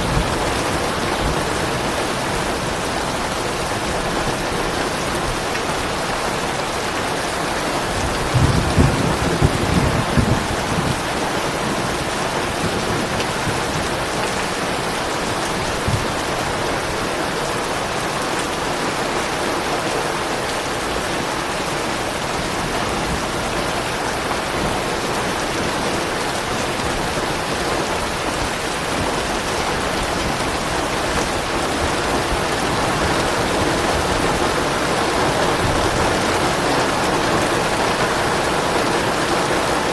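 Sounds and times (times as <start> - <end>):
heavy rain falling: 0.0 - 39.9
soft thunder rumble: 7.9 - 16.9.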